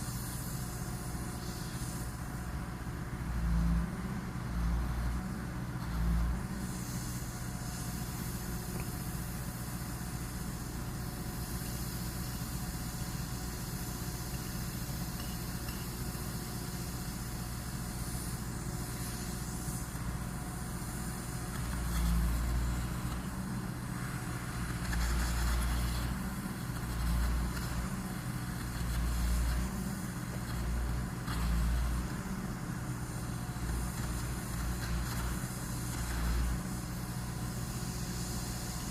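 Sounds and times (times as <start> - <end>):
engine idling: 0.0 - 38.9.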